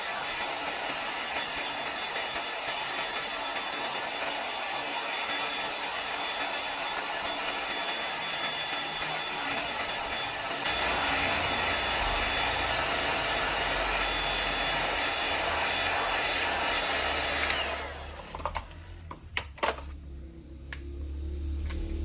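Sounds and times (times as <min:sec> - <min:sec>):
hot air gun blowing: 0:00.0 - 0:18.8
fan winding down: 0:00.0 - 0:22.0.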